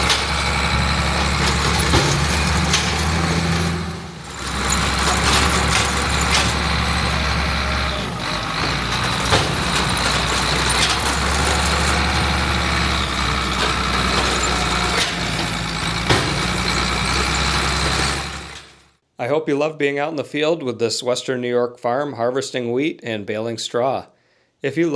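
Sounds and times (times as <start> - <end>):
diesel farm machinery running: 0.0 - 18.9.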